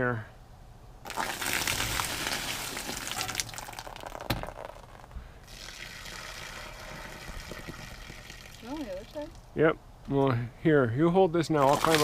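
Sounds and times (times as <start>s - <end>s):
water splashing off awning fabric: 1.1s - 4.8s, 11.6s - 12.0s.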